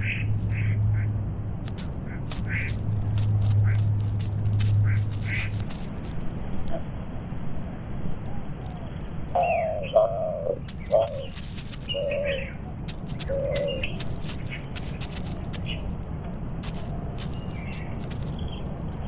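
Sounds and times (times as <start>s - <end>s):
small birds chirping: 0.0s - 6.8s, 8.4s - 19.0s
low background rumble: 0.0s - 19.0s
dove cooing: 9.4s - 15.6s.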